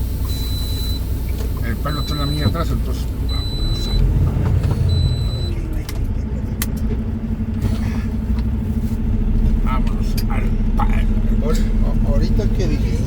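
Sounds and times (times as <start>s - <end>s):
truck engine and road rumble: 0.0s - 13.0s
high electronic beep: 0.3s - 1.1s, 1.8s - 2.6s, 3.3s - 4.1s, 4.9s - 5.6s.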